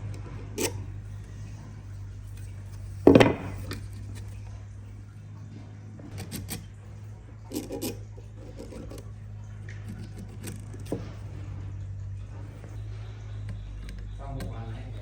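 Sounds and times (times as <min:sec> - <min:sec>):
steady low hum: 0:00.0 - 0:15.0
rubbing: 0:07.5 - 0:11.7.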